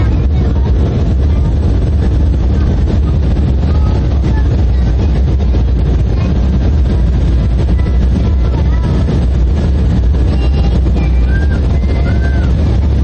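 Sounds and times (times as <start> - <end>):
air rushing over fuselage: 0.0 - 13.0
jet engines roaring in cabin: 0.0 - 13.0.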